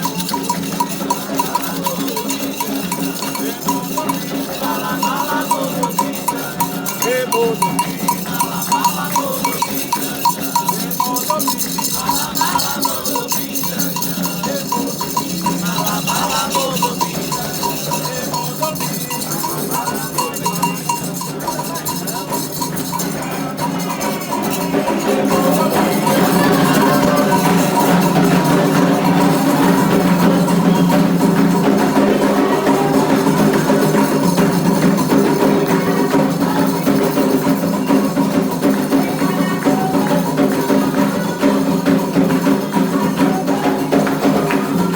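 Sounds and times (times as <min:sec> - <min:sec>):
drums: 0:00.0 - 0:44.9
metal bell: 0:00.0 - 0:44.9
shaker: 0:00.0 - 0:44.9.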